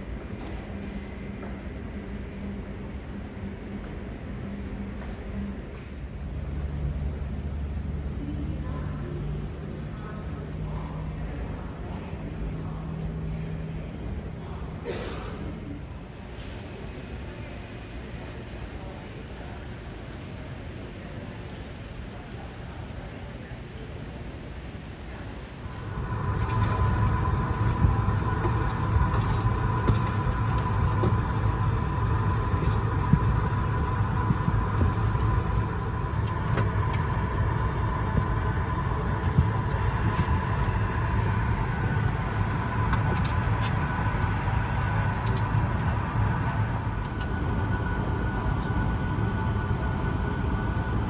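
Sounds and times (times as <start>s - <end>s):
aircraft systems low rumble: 0.0s - 51.0s
steady whine: 25.2s - 51.0s.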